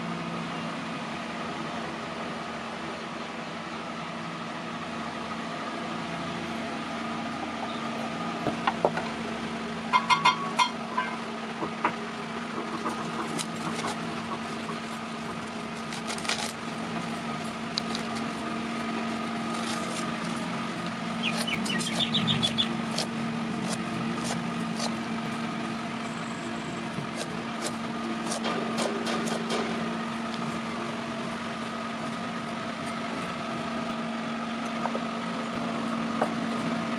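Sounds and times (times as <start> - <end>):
steady machine hum: 0.0 - 36.9
high chirping squeak: 21.2 - 22.8.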